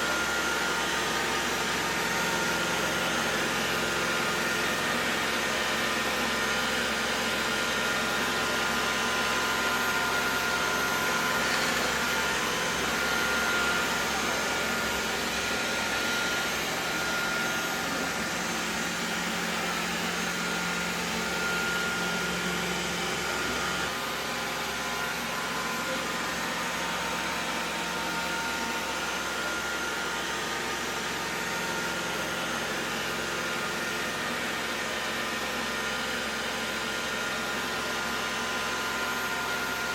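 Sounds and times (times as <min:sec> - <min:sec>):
robot vacuum whirring: 0:10.9 - 0:22.1.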